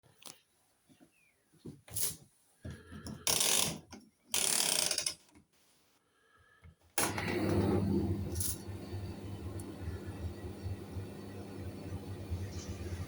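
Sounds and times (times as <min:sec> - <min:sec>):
tumble dryer humming: 0:07.0 - 0:13.0.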